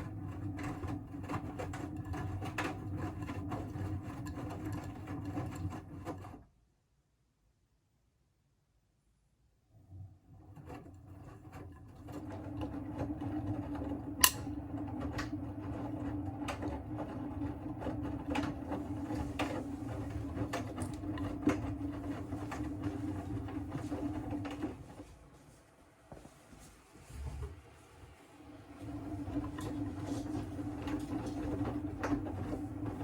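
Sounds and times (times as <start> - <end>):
washing machine drum motor humming: 0.0 - 6.4, 9.8 - 26.3, 27.0 - 33.0.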